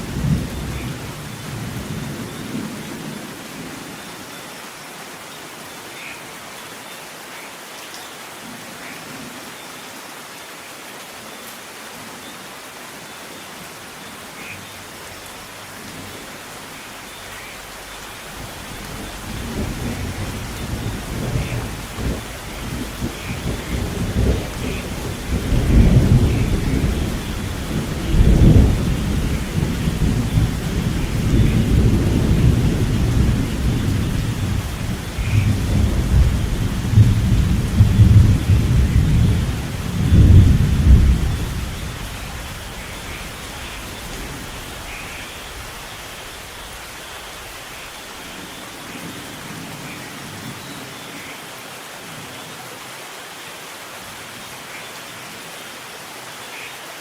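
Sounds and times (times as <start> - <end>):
steady rain: 0.0 - 57.0
rolling thunder: 17.6 - 46.8.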